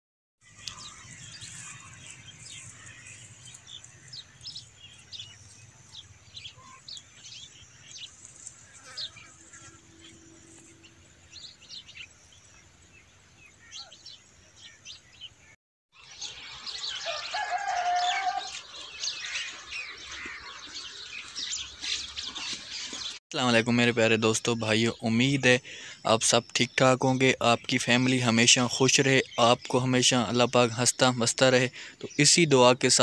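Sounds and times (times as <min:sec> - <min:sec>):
small birds chirping: 0:00.4 - 0:33.0
lower held bird call: 0:06.4 - 0:07.6, 0:16.0 - 0:21.0.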